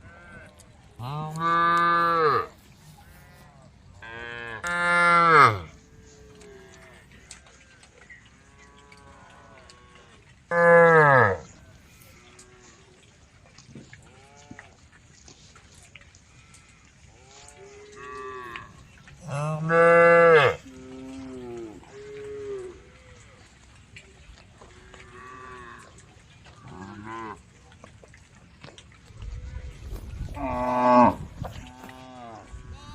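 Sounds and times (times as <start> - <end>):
cows mooing: 0.0 - 7.8, 8.4 - 12.8, 16.2 - 23.5, 24.6 - 27.4, 29.9 - 32.9.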